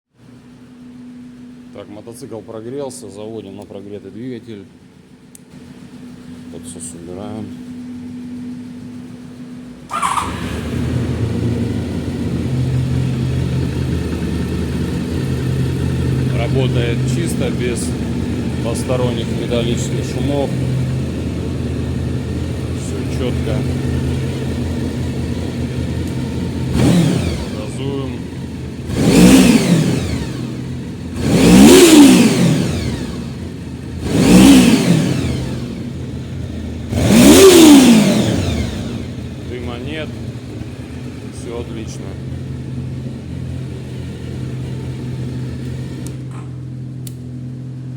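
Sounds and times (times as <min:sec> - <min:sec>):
motorcycle engine idling: 0:00.2 - 0:47.9
motorcycle starter cranking: 0:09.9 - 0:21.8.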